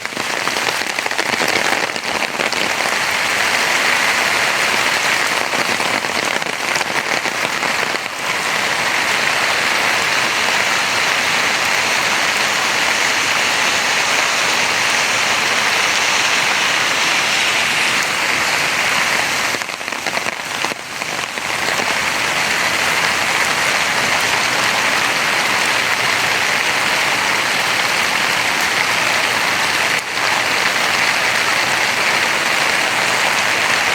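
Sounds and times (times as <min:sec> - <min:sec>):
heavy rain on hard surfaces: 0:00.0 - 0:33.9.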